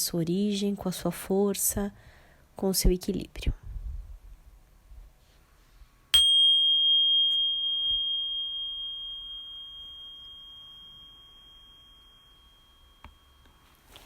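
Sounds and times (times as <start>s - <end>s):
meditation bell ringing: 6.2s - 14.0s.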